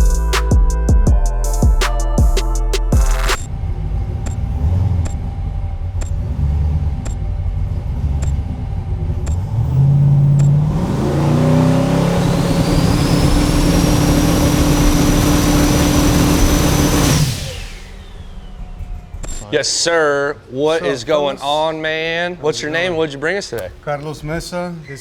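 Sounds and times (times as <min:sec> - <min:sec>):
car engine idling and revving: 0:03.0 - 0:19.5.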